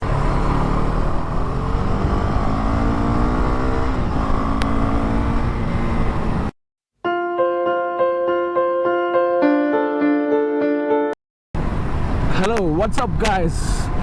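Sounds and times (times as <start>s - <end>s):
motorcycle engine accelerating: 0.0s - 6.5s.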